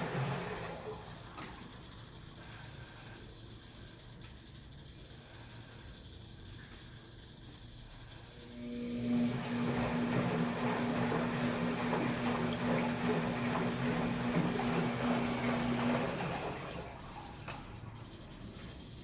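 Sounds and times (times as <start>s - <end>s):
water churning and splashing: 0.0s - 1.0s, 9.2s - 17.2s
washing machine motor hum: 0.0s - 19.0s.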